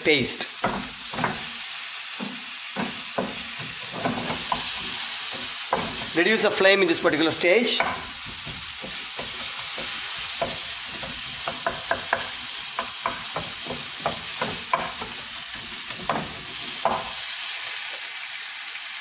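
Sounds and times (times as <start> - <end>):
food sizzling in a pan: 0.0 - 19.0
wooden utensil scraping pan: 2.2 - 17.1.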